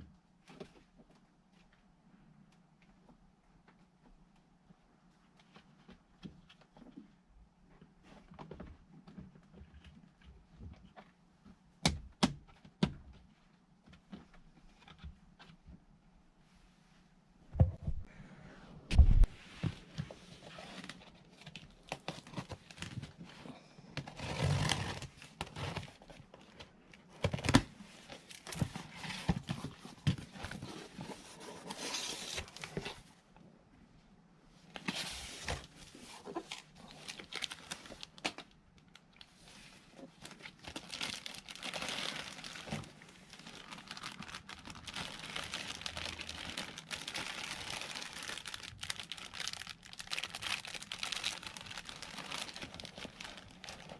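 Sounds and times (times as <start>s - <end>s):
crinkling and rustling: 18.9s - 33.3s, 34.6s - 53.9s.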